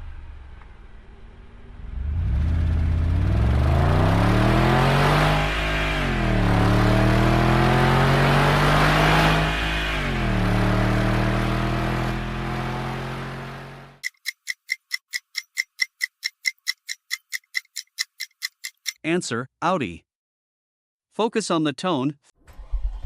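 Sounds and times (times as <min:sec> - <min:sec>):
car engine accelerating hard: 0:01.2 - 0:14.0
fast clock-like ticking: 0:14.0 - 0:19.0.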